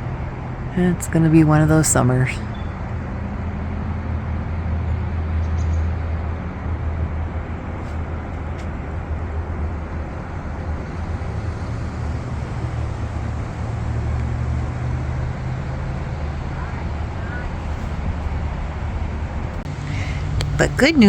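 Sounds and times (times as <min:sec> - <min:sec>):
road noise hiss: 0:00.0 - 0:21.0
steady low rumble: 0:06.1 - 0:21.0.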